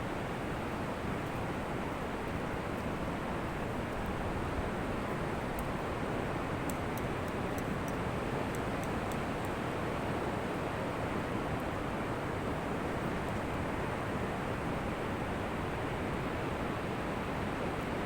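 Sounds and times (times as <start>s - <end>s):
faint high ticks: 6.6s - 9.6s.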